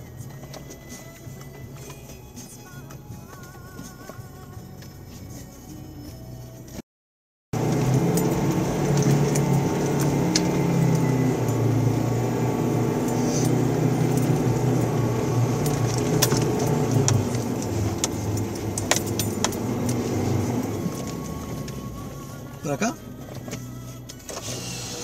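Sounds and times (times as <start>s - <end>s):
car engine running: 7.6s - 25.0s.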